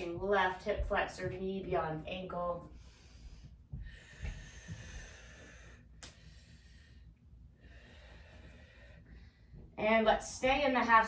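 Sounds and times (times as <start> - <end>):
person breathing close to microphone: 2.7 - 9.7.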